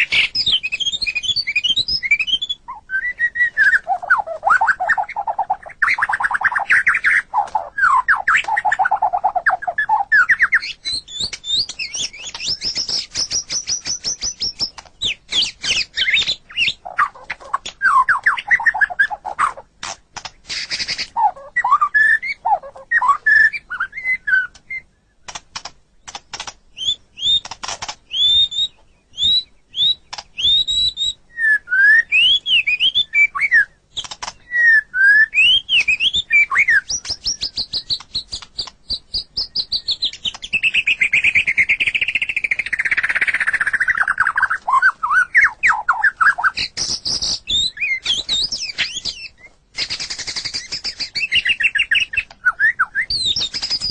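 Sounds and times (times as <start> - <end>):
songbird singing whistled notes: 0.0 - 19.6, 20.4 - 25.4, 26.0 - 53.9
harsh rattling bird notes: 53.2 - 53.9.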